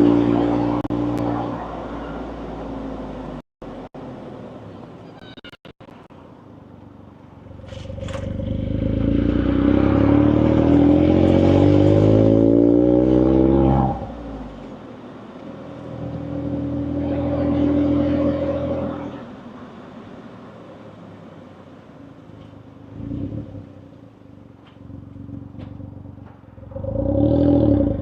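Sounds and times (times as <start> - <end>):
car engine exhaust accelerating: 7.4 - 19.3, 22.8 - 28.0.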